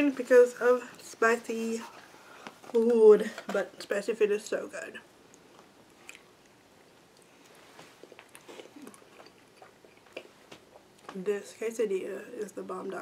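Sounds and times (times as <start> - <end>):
person chewing food: 5.4 - 11.2.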